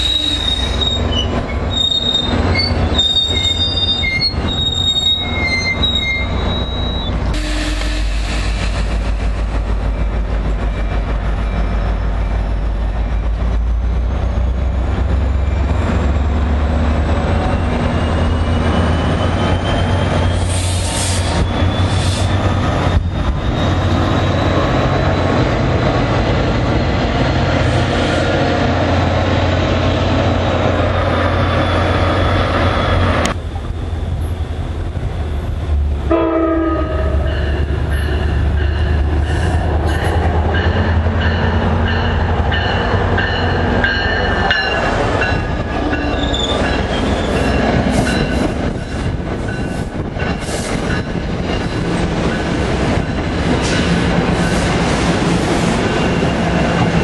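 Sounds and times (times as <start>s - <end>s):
train horn: 0.0s - 0.6s, 7.3s - 8.4s, 36.1s - 37.6s
train wheels squealing: 0.0s - 7.3s, 8.0s - 28.5s, 31.0s - 33.2s, 37.2s - 57.0s
diesel train engine drone: 0.0s - 57.0s
train wheels rumbling: 0.0s - 57.0s.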